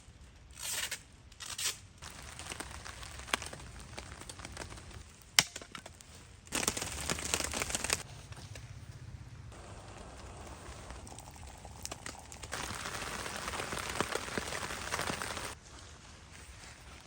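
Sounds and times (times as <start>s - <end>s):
crinkling rustle: 1.4s - 5.2s, 5.8s - 8.7s, 9.6s - 17.0s.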